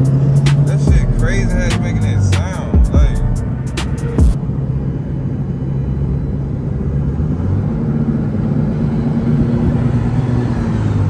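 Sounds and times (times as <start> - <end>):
high steady whine: 0.0 - 6.9
car engine droning: 0.0 - 11.0.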